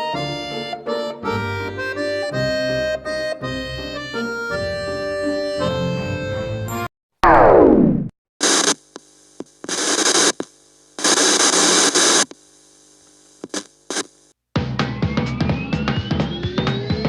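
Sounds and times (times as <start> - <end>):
falling pitch sweep: 7.2 - 8.1
electrical hum: 7.2 - 14.4
electrical static hiss: 8.4 - 14.4.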